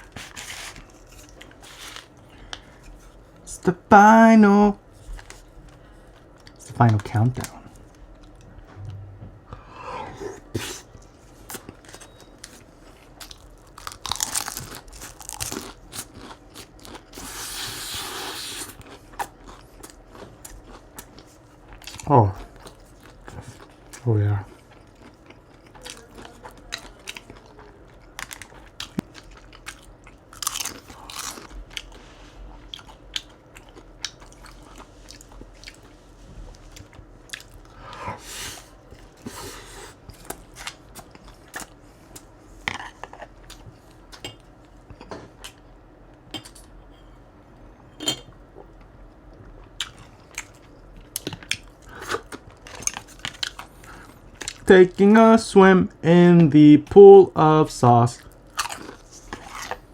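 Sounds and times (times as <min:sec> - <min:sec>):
person chewing crispy food: 0:10.4 - 0:44.2, 0:48.6 - 0:54.7, 0:58.2 - 0:59.9.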